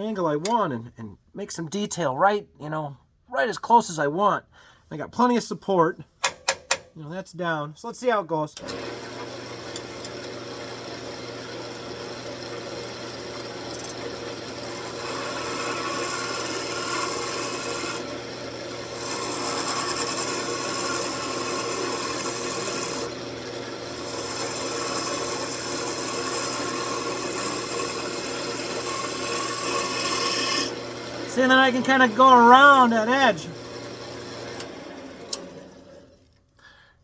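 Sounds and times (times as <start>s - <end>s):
lathe motor hum: 8.6s - 36.2s
tool scraping spinning wood: 13.6s - 34.7s.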